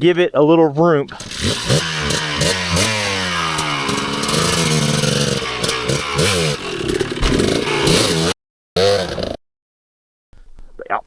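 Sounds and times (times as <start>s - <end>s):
dirt bike engine revving: 1.1s - 9.4s.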